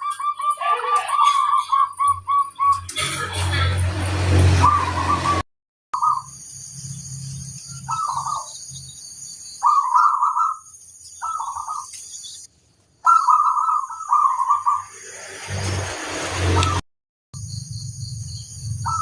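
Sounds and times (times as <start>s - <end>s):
dove cooing: 0.0s - 3.6s, 7.9s - 8.5s, 9.6s - 10.6s, 11.2s - 11.9s, 13.0s - 14.9s.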